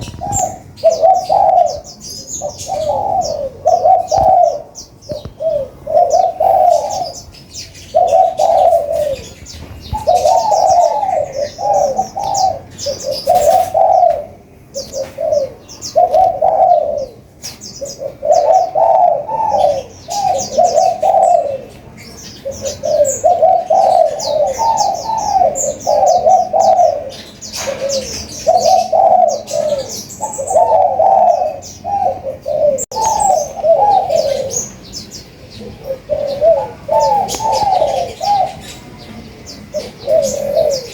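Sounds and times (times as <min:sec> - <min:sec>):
rapid high-pitched bird chirping: 0:00.0 - 0:14.2
dove cooing: 0:00.0 - 0:40.9.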